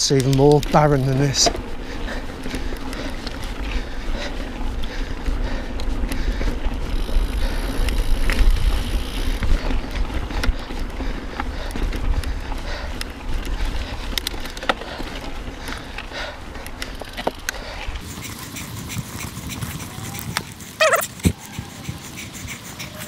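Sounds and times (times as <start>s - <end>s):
bike clicks and rattles: 0.0s - 23.0s
bike tyres on wet gravel: 0.0s - 23.0s.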